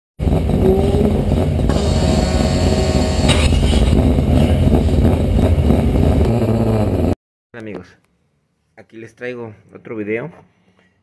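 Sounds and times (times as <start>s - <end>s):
car engine revving: 0.2s - 7.2s.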